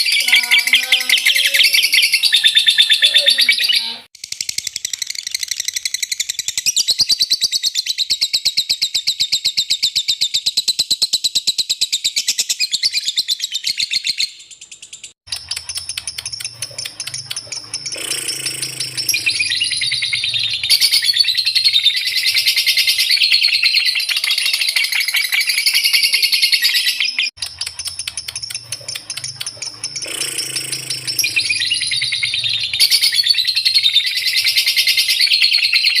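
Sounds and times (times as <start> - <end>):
lovebird chattering trill: 0.0 - 4.0, 15.3 - 36.0.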